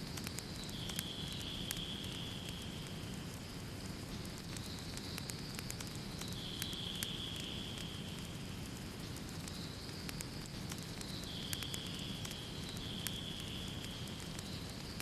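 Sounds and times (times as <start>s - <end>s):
fire crackling and popping: 0.0s - 15.0s
flame rumble: 0.0s - 15.0s.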